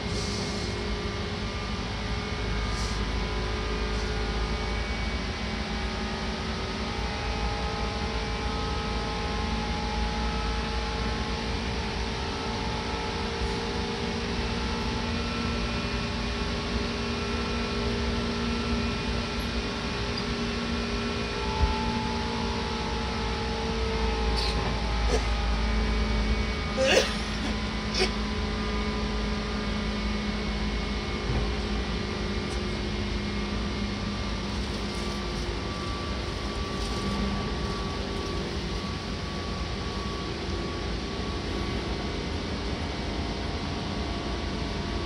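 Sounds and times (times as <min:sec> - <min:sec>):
train wheels rumbling on track: 0:30.6 - 0:44.8.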